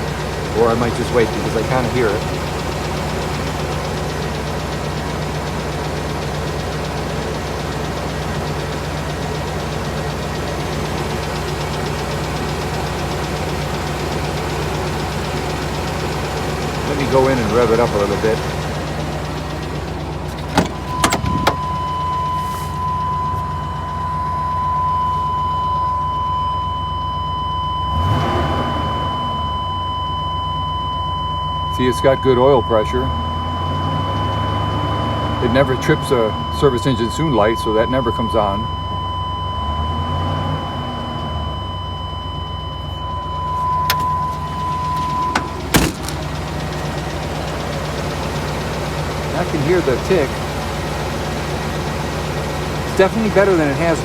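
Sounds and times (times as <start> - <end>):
van engine idling: 0.0 - 28.2, 28.8 - 54.0
van door clicks and knocks: 20.3 - 21.6, 43.9 - 46.2.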